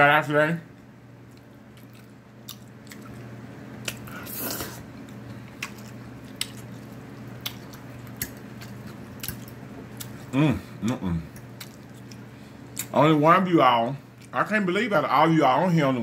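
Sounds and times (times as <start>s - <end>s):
wet sucking sound: 4.1s - 4.8s.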